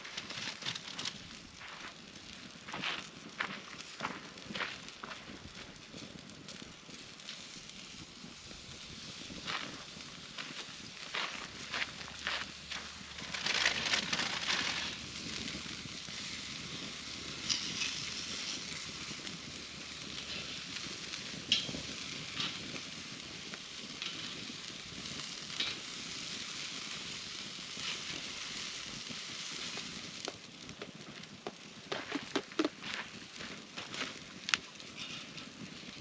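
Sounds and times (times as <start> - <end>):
food sizzling in a pan: 7.2 - 30.5.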